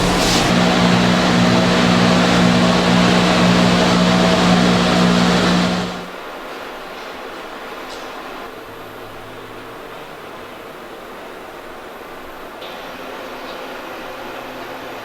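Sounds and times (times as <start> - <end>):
factory machinery hiss and hum: 0.0 - 6.1.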